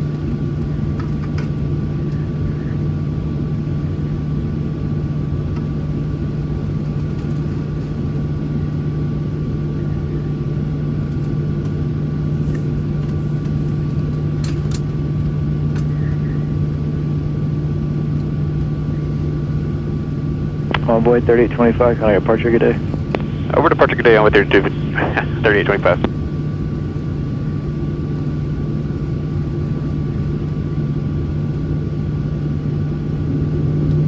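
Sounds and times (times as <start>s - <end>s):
airliner cabin engine drone: 0.0s - 34.0s
faint whine: 20.6s - 26.2s
faint clicks: 20.7s - 26.1s.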